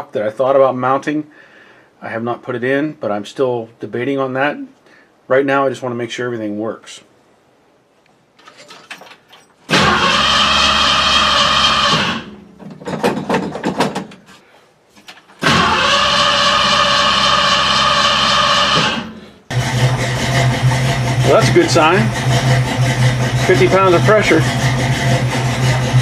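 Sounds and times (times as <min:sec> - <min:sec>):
car starter motor cranking: 0:09.7 - 0:12.4, 0:15.4 - 0:26.0
car engine running: 0:15.4 - 0:26.0.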